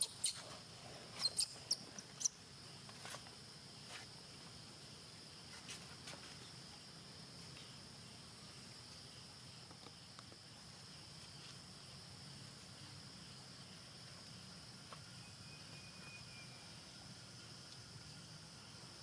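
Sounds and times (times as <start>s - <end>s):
thin whistle: 15.4s - 16.6s.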